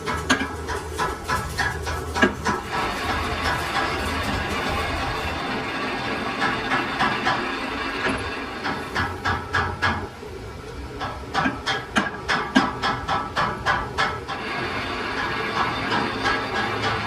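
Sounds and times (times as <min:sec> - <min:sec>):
steady machine noise: 0:00.0 - 0:17.0
sharp metal knocks: 0:11.0 - 0:14.4.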